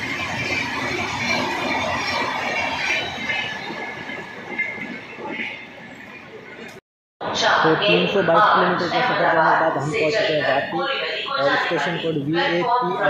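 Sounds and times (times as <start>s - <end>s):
high wheel squeal: 0.0s - 6.8s
train wheels rumbling on rail: 0.0s - 6.8s.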